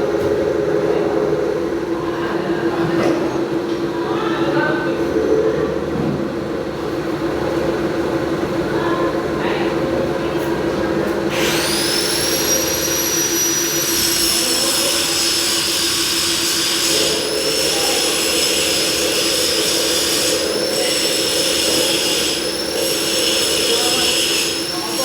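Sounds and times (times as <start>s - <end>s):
milling machine spindle whine: 11.2s - 25.0s.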